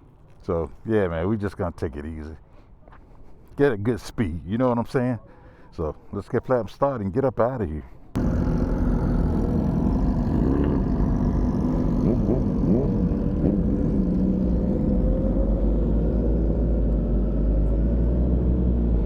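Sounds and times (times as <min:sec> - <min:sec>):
motorcycle throttle blips: 0:08.2 - 0:18.2
motorcycle engine running: 0:08.2 - 0:19.0.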